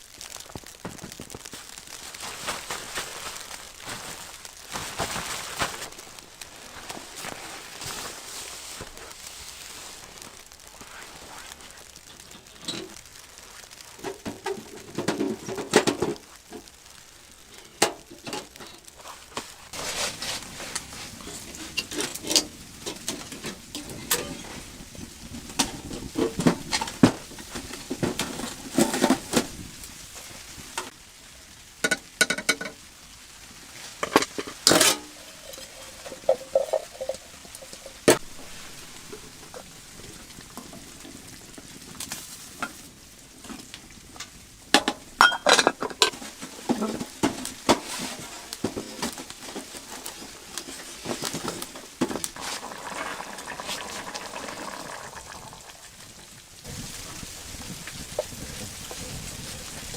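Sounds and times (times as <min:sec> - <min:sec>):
hiss: 0:01.5 - 0:31.6, 0:32.6 - 0:45.1, 0:46.1 - 0:59.9
knocks and clinks of handling: 0:34.0 - 0:38.8.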